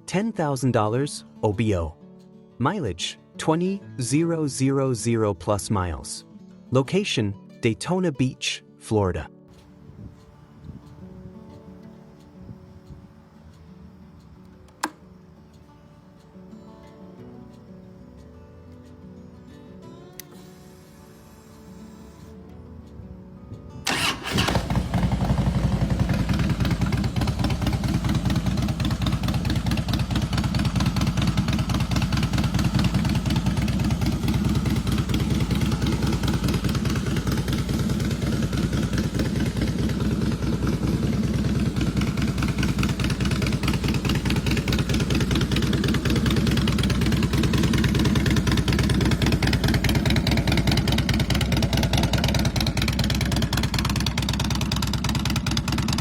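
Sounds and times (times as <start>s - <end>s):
motorcycle engine starting and idling: 9.5s - 16.4s, 20.0s - 23.2s, 23.8s - 56.0s.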